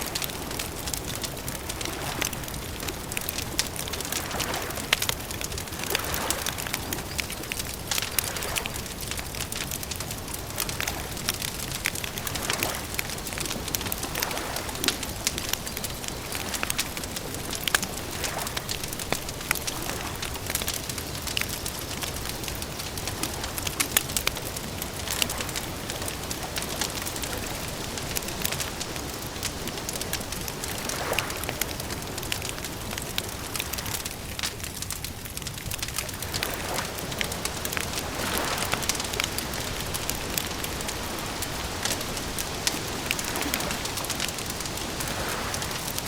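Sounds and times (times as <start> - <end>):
campfire crackling: 0.0 - 46.0.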